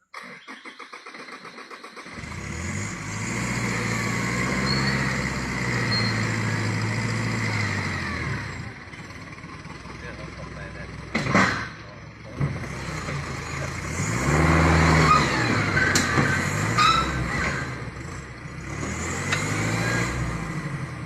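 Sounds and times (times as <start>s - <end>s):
engine starting and revving: 0.0s - 21.0s
engine ticking: 0.2s - 14.4s.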